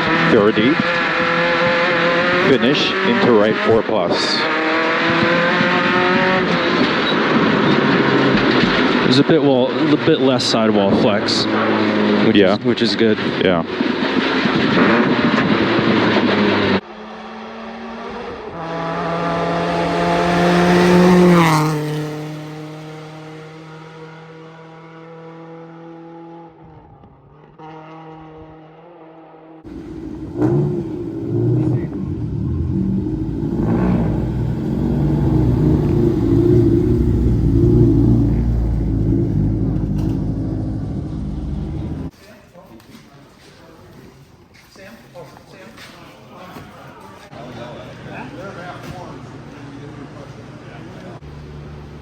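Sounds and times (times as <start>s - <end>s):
in-car engine and road noise: 0.0s - 42.1s, 48.4s - 52.0s
rally car passing by: 0.0s - 42.1s
car engine running: 29.7s - 42.1s.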